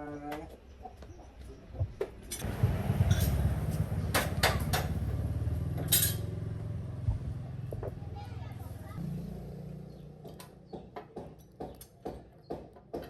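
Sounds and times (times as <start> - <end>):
engine running: 2.4 - 10.1.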